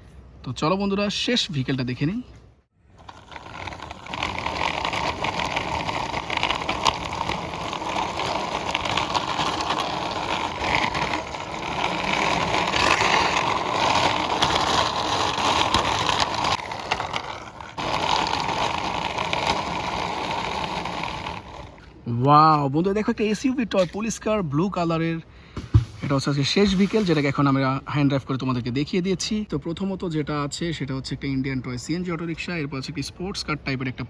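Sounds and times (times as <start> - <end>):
toy car wheels rolling on concrete: 2.8 - 25.1.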